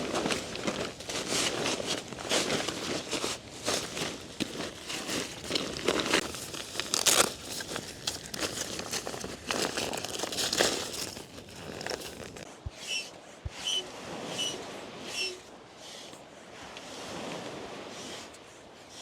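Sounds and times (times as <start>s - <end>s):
tent fabric crinkling and rustling: 0.0s - 12.5s.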